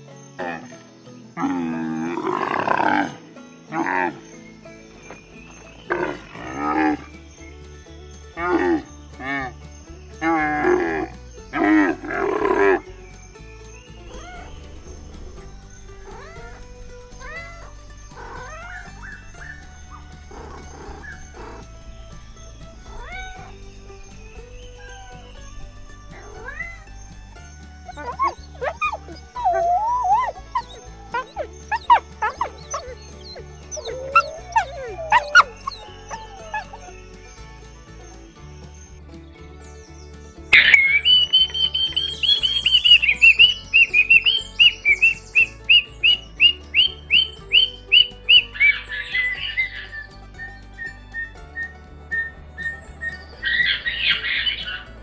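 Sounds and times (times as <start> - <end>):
soft background music: 0.0 - 55.0
wolf howling: 1.4 - 4.2, 5.8 - 7.1, 8.4 - 9.5, 10.2 - 12.9, 13.9 - 37.6, 40.6 - 55.0
wolf yipping: 10.2 - 12.8, 13.8 - 37.6, 40.6 - 55.0
parrot chirping: 13.8 - 37.4.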